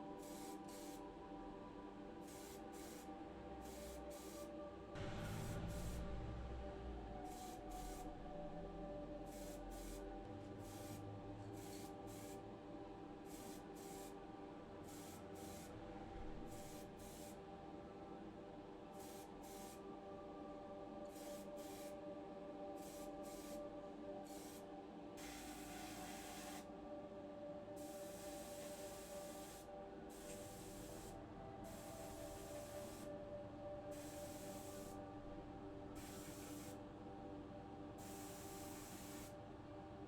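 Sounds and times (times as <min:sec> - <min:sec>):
steady hum: 0:01.0 - 0:18.9.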